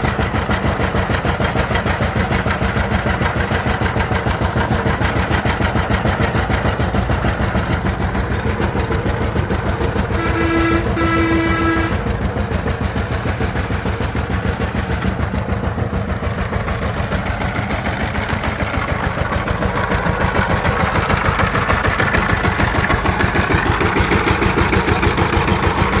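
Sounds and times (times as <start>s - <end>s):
diesel engine running: 0.0s - 26.0s
horn sounding: 10.1s - 12.1s.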